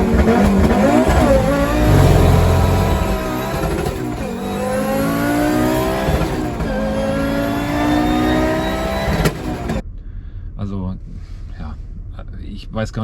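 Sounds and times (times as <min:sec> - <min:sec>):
car engine accelerating hard: 0:00.0 - 0:09.8.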